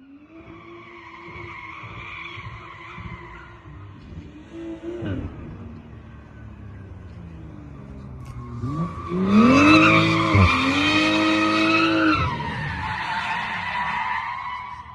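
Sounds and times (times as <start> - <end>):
car engine revving hard: 8.5 - 12.2.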